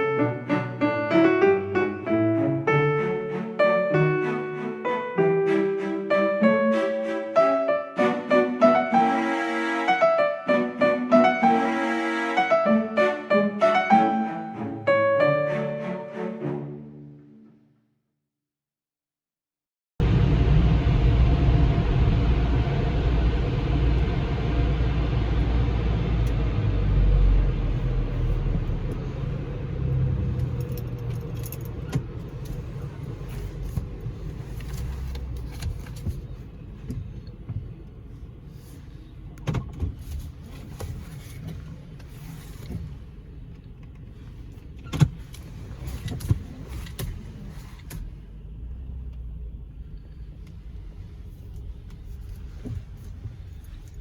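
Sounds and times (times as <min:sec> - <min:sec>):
car wash machinery rumble: 0:20.0 - 0:49.4.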